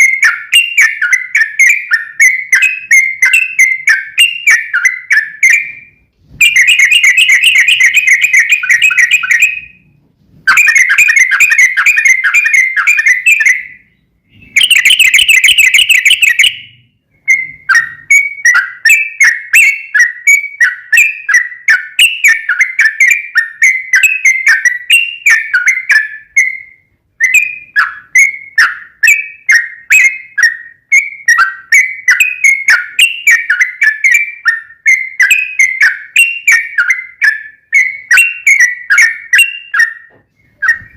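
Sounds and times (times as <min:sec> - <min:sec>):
bird chirping short notes: 0:00.0 - 0:20.1, 0:37.8 - 0:40.9
bird singing rolling trills: 0:00.0 - 0:40.9.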